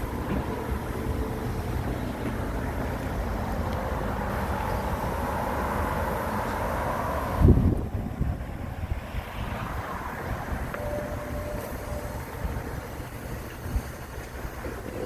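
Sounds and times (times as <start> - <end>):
machinery rumbling: 0.0 - 15.0
faint whine: 10.3 - 15.0.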